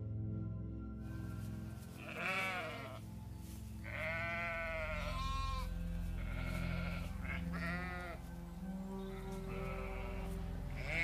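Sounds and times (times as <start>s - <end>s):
soft ambient music: 0.0s - 11.0s
goat bleating: 2.0s - 3.0s, 3.8s - 8.2s, 9.1s - 11.0s.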